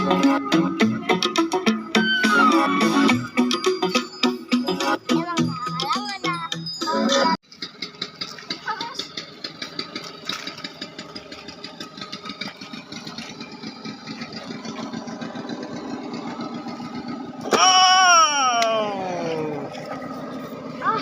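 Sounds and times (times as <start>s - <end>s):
music: 0.0s - 7.4s
engine idling chugging: 0.0s - 21.0s.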